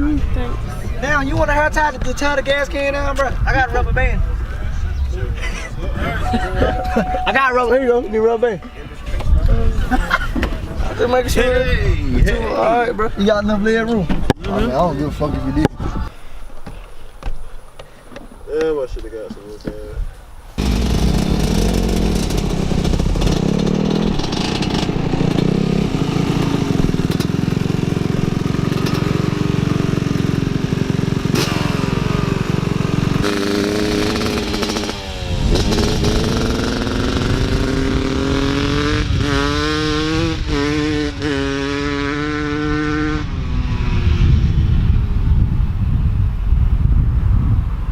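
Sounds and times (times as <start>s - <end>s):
wind on microphone: 15.0s - 16.1s, 34.0s - 47.9s
small off-road engine running: 20.6s - 40.8s.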